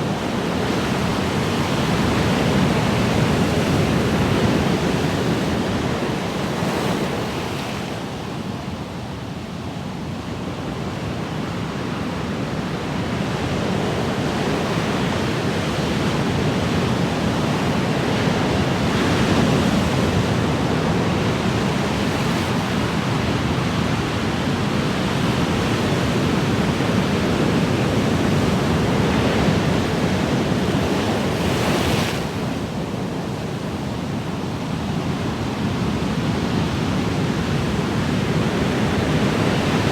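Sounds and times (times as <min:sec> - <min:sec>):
ocean waves on a shore: 0:00.0 - 0:39.9.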